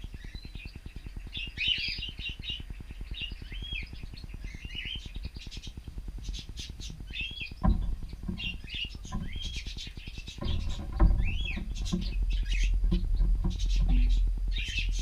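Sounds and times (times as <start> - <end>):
low rapid pulsing hum: 0.0 - 15.0
cockatiels chirping: 0.1 - 10.6.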